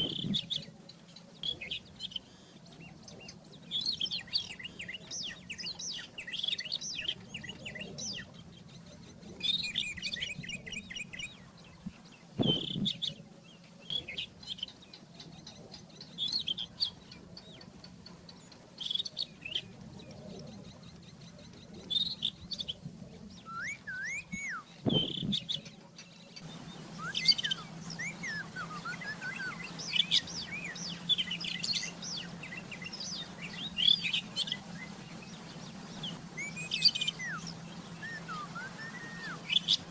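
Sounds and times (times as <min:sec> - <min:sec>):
bird warbling song: 0:00.0 - 0:39.9
short thumps: 0:12.4 - 0:13.0.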